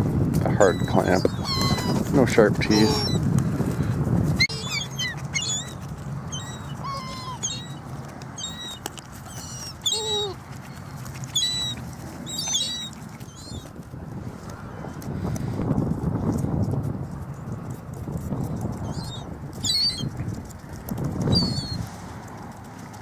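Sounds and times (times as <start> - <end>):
seagulls calling: 0.5 - 3.2, 4.4 - 13.8, 18.8 - 20.1, 21.2 - 21.8.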